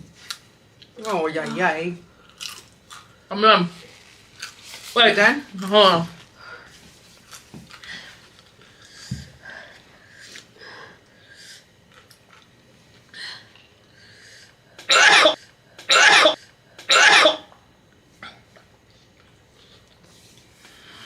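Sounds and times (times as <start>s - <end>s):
person coughing hard: 14.8s - 17.5s.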